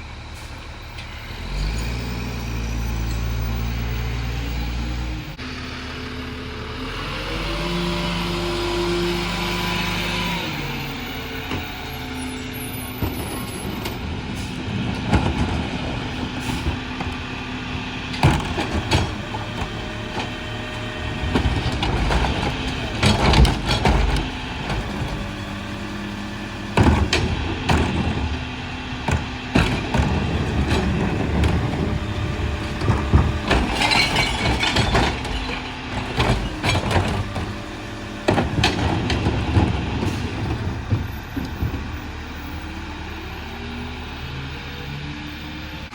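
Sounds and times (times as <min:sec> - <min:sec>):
garbage truck idling: 0:00.0 - 0:45.9
rear loader clanking and banging: 0:07.3 - 0:43.6.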